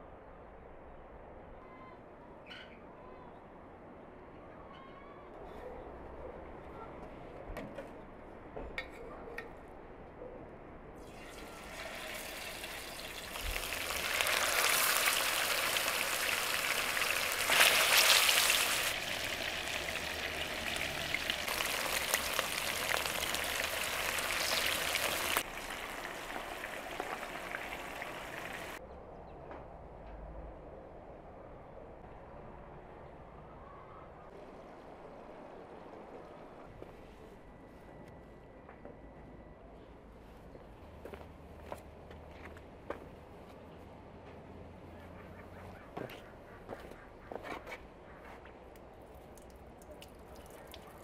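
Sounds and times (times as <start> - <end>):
chicken sizzling in hot oil: 11.0 - 28.8.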